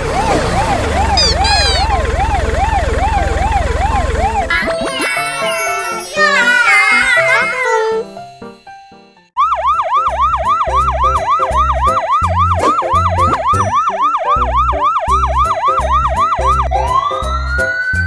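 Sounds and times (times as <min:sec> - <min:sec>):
electronic siren-like warble: 0:00.0 - 0:04.9, 0:09.4 - 0:18.0
children's music with beat: 0:01.0 - 0:02.0, 0:04.4 - 0:18.0.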